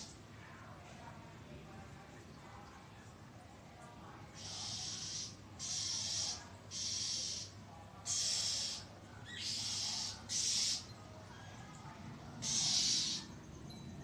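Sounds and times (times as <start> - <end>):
bird harsh hissing scold: 4.4 - 7.5, 8.1 - 10.8.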